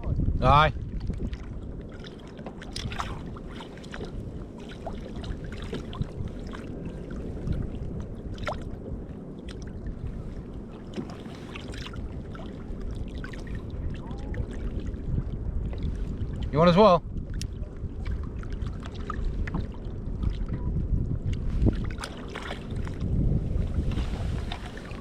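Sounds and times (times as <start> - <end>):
water lapping around kayak: 0.0 - 25.0
wind rumble on microphone: 0.0 - 25.0
small splashes: 1.2 - 7.2, 21.6 - 23.0.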